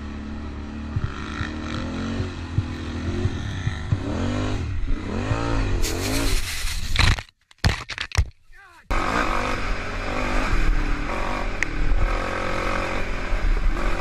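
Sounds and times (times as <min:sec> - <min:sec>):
quad bike engine revving: 0:00.0 - 0:06.5, 0:08.9 - 0:14.0
sand spraying rush: 0:05.8 - 0:07.0.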